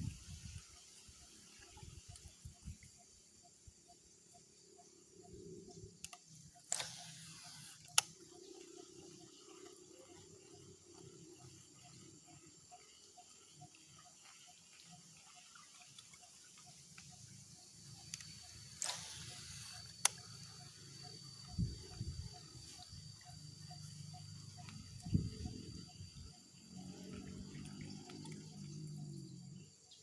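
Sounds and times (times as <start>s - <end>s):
thin high steady whines: 4.8s - 14.0s, 16.6s - 30.0s
sharp click: 6.0s - 8.2s, 18.0s - 20.3s.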